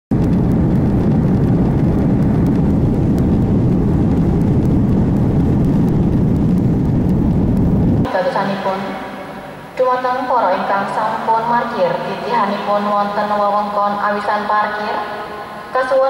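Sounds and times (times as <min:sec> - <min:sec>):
jet airliner engines rumbling: 0:00.1 - 0:16.0.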